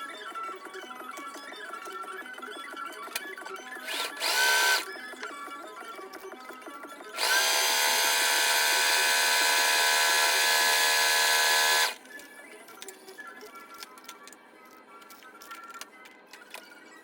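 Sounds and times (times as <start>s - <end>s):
sewing machine whining: 3.8s - 4.9s, 7.2s - 12.0s.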